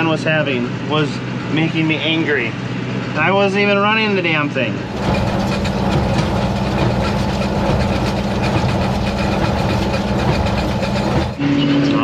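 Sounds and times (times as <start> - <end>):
tractor engine running: 4.8 - 11.5
hay baler rattling: 4.9 - 11.4.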